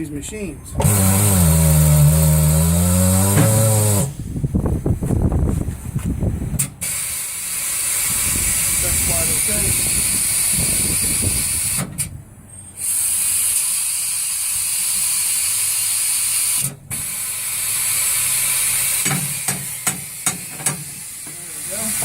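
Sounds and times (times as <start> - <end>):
compressed air hissing: 6.6 - 12.0, 12.7 - 22.0.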